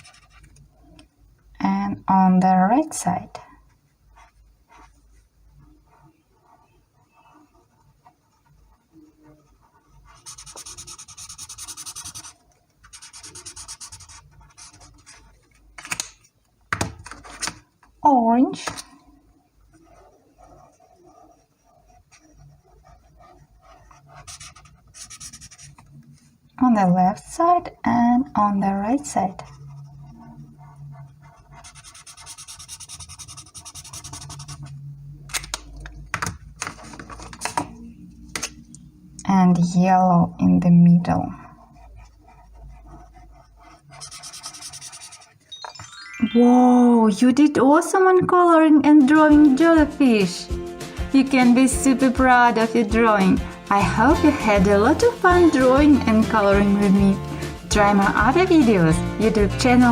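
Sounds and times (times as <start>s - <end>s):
colouring tool scribbling on paper: 4.1s - 15.4s, 19.7s - 25.8s, 28.9s - 34.7s, 41.5s - 45.4s.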